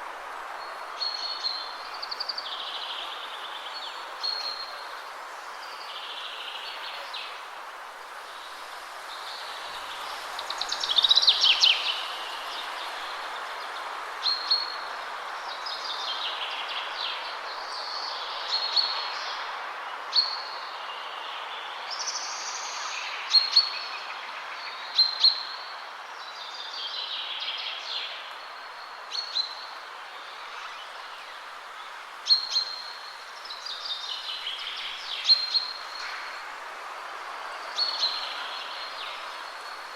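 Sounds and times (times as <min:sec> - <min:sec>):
wind rushing through trees: 0:00.0 - 0:39.9.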